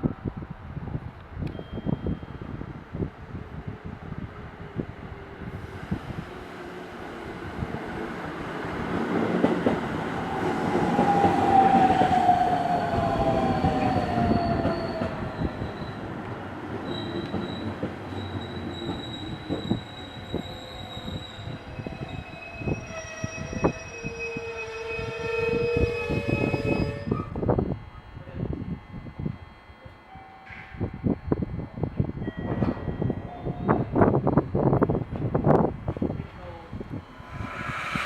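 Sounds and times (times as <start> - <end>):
electric train passing: 2.4 - 22.6, 36.8 - 38.0
train whine falling in pitch: 9.6 - 16.1, 37.0 - 38.0.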